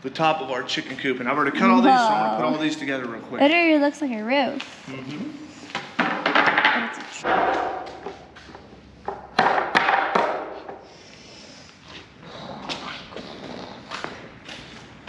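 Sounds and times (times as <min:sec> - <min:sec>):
boards clattering: 0:05.8 - 0:08.3, 0:09.0 - 0:10.8
loud sharp knocks on wood: 0:09.1 - 0:10.5.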